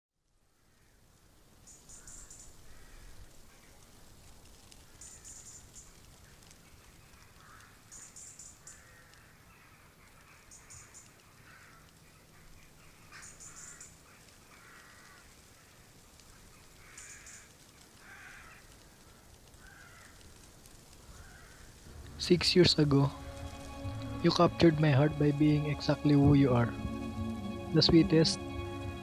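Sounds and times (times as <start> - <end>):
harsh bird calls: 1.7 - 3.8, 4.9 - 20.2.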